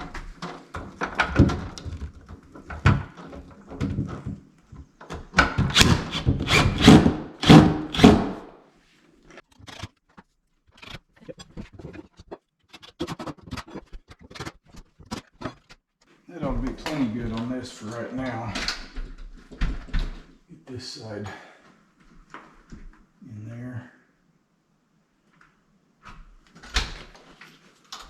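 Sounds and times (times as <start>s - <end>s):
wooden door knocks and thumps: 0.0s - 8.4s, 18.5s - 20.3s.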